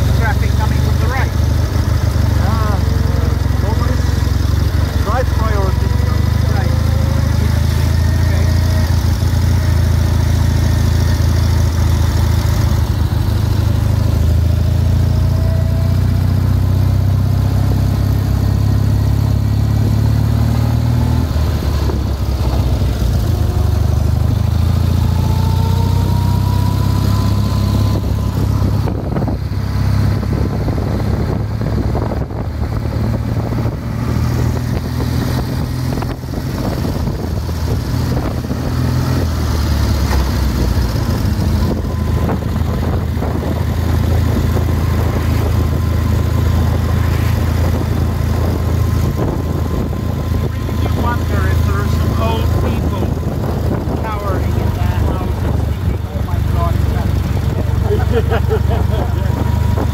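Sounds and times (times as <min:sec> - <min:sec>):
motorcycle engine droning: 0:00.0 - 0:59.9.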